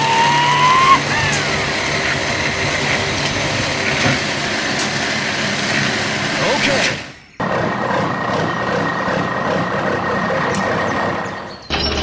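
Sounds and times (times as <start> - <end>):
rising and falling tone: 0.0 - 2.3
small engine running: 0.0 - 12.0.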